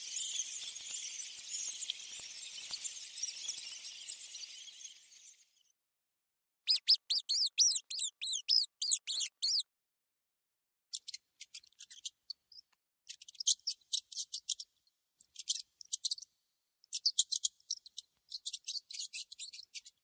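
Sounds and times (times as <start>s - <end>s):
mouse squeaking: 6.7s - 9.6s, 10.9s - 14.6s, 16.9s - 19.9s.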